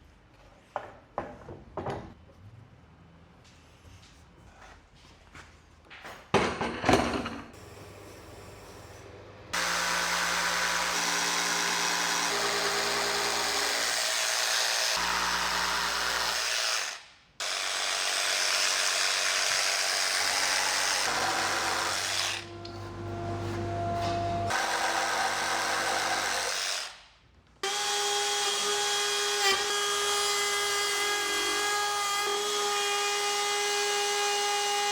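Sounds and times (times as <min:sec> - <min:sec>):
electric power tool running: 0:09.5 - 0:27.0.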